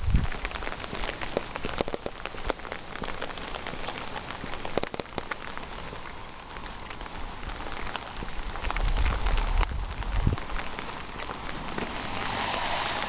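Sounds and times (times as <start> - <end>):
raindrops ticking on surfaces: 0.0 - 13.0
steady rain falling: 0.0 - 13.0.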